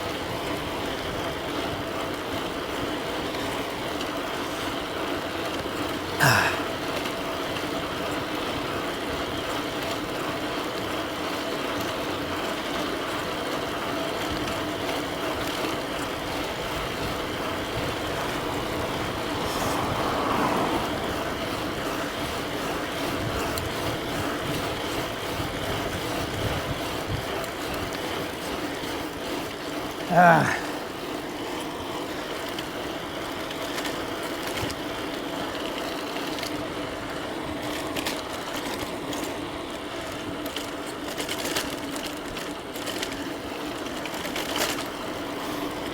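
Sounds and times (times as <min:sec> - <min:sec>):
tyre and wind noise: 0:14.2 - 0:29.5.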